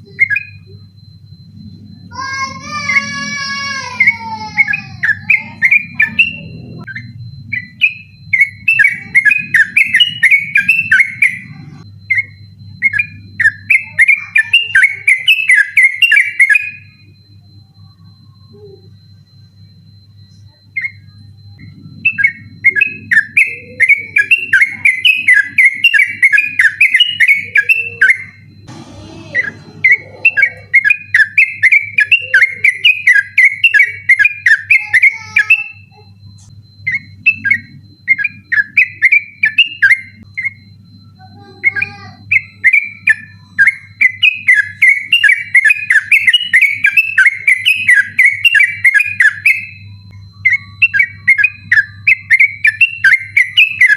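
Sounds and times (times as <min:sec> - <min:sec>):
bird chattering song: 0:04.0 - 0:17.0, 0:20.7 - 0:28.5, 0:29.2 - 0:36.1, 0:36.8 - 0:53.9
low hum: 0:28.5 - 0:30.9.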